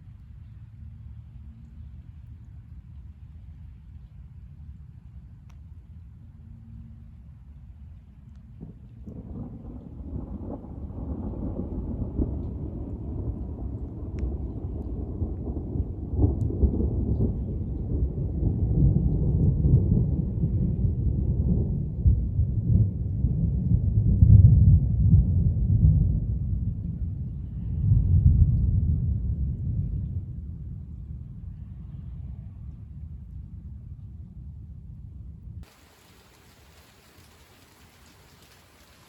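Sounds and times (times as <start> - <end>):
deep roll of thunder: 8.6 - 31.3.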